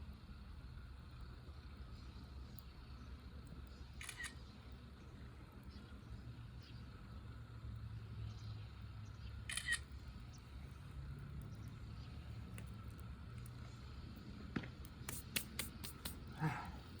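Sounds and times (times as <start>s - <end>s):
low steady hum: 0.0s - 17.0s
wood fire crackling and popping: 9.8s - 16.3s.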